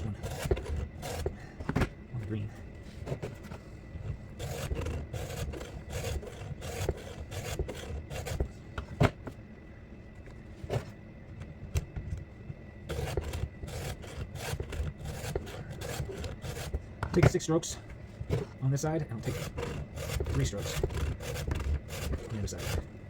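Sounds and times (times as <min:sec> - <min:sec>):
hand file rasping on saw chain: 0:04.4 - 0:08.4, 0:12.9 - 0:16.8, 0:19.1 - 0:22.9.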